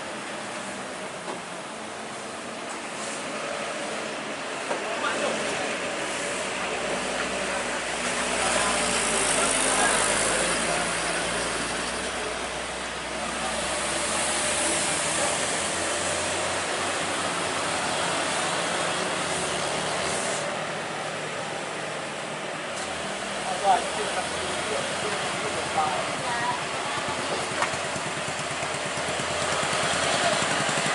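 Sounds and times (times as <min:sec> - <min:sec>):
rushing road noise: 0:00.0 - 0:30.9
vehicle engine running: 0:23.0 - 0:30.9.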